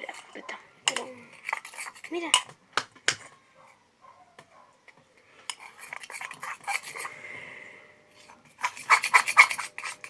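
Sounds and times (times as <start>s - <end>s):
utensil scraping slime in container: 8.6s - 10.0s.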